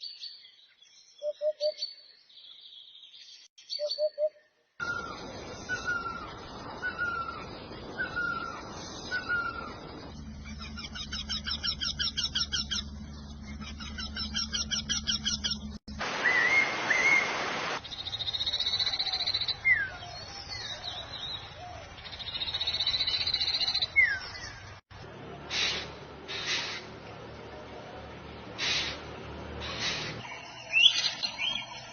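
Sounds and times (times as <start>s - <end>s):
high trilled bird song: 0.0s - 17.2s, 29.6s - 31.9s
whistled bird notes: 3.6s - 12.8s, 16.2s - 17.3s, 29.6s - 31.8s.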